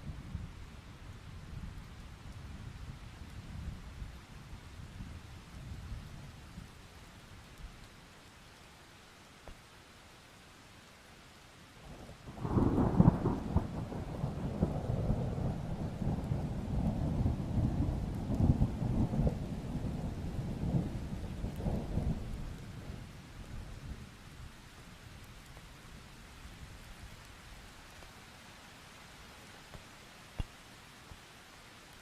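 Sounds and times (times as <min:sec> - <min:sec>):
light rain: 0:00.0 - 0:32.0
thunderclap rumbling: 0:12.3 - 0:23.1.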